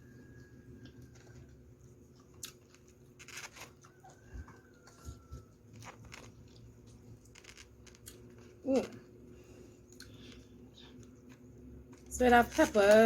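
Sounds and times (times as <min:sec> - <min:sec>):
chewing food: 0:00.1 - 0:12.1.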